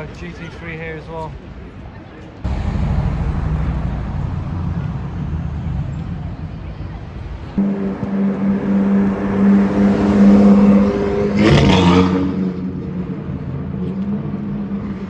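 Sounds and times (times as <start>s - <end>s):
car engine running: 2.5s - 8.4s
engine rushing surge: 2.5s - 12.2s.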